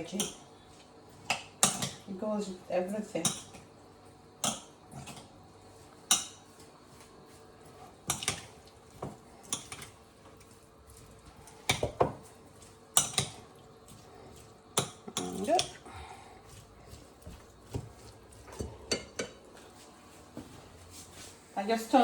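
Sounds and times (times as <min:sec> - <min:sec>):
dishes and utensils clinking: 0:18.4 - 0:19.4.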